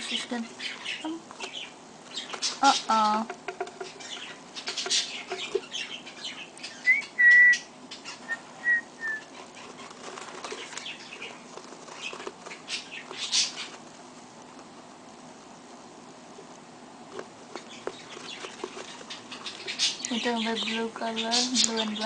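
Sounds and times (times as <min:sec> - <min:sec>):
baby birds fluttering and scrabbling: 0:00.0 - 0:14.8, 0:17.0 - 0:22.0
high bird peeps: 0:00.5 - 0:13.8, 0:17.6 - 0:22.0
scratchy clicks and rustles: 0:01.2 - 0:05.7, 0:09.3 - 0:14.7, 0:16.4 - 0:20.2.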